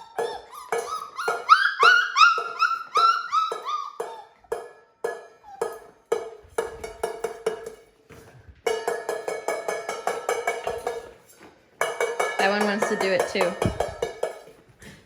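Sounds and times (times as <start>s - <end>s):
puppies yipping: 0.0s - 6.2s
metal bowl being banged: 3.5s - 8.0s, 8.7s - 11.2s, 11.8s - 14.6s.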